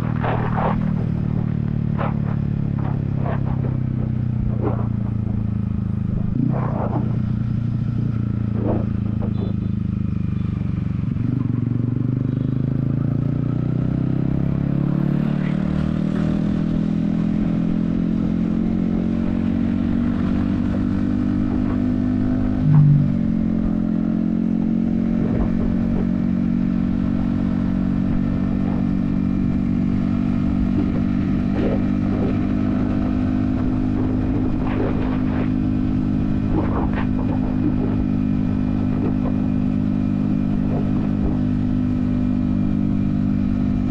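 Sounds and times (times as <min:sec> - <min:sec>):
motorcycle engine on highway: 0:00.0 - 0:43.9
engine blip: 0:22.6 - 0:23.1.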